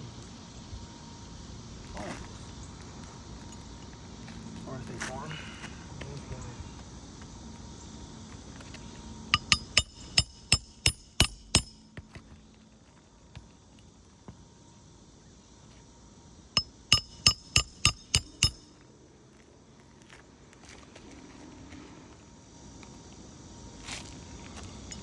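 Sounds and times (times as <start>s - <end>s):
hammer striking nails: 9.4s - 11.9s, 16.6s - 18.7s.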